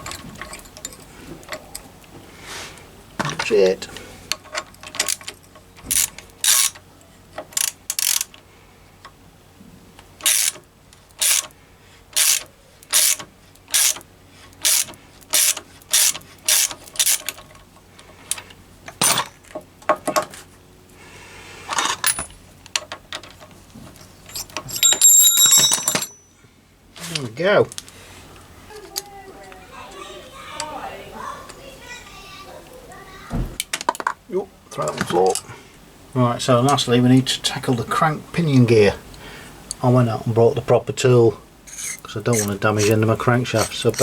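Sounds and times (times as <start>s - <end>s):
ratchet wrench clicking: 5.9s - 6.8s, 7.5s - 8.4s, 10.2s - 10.6s, 11.2s - 11.5s, 12.1s - 14.0s, 14.6s - 17.4s, 41.7s - 44.0s.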